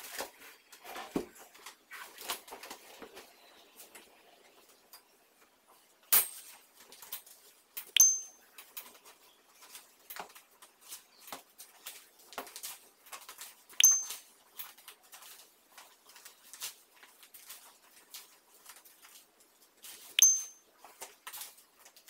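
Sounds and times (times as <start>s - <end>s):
curtain rings clinking on rod: 6.2s - 8.8s, 13.8s - 14.8s, 20.2s - 20.7s.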